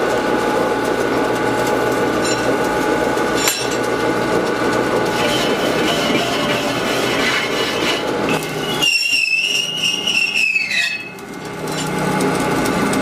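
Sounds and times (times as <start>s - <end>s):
steady machine noise: 0.0s - 13.0s
hammer strike on metal: 3.4s - 3.8s.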